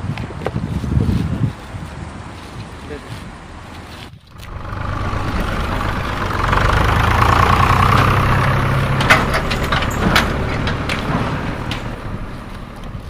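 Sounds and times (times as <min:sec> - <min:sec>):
heavy vehicle engine running: 0:01.9 - 0:13.0
sharp knocks: 0:04.4 - 0:12.8.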